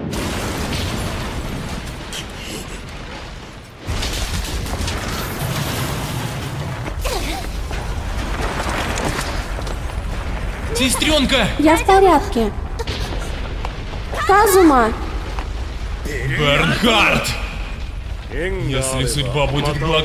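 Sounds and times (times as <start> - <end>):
deep continuous rumble: 0.0 - 20.0
explosion blast: 0.0 - 20.0.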